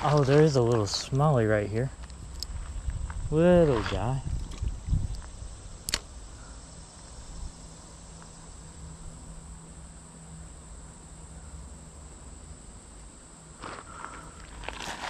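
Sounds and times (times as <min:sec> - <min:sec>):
low steady rumble: 0:00.0 - 0:14.9
insects trilling: 0:00.0 - 0:15.0
sharp click: 0:05.8 - 0:06.1.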